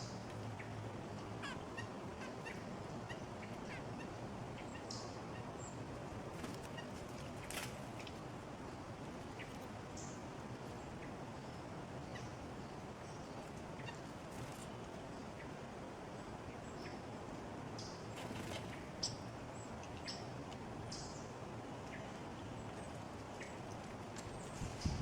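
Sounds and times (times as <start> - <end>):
songbirds chirping: 0.0 - 25.0.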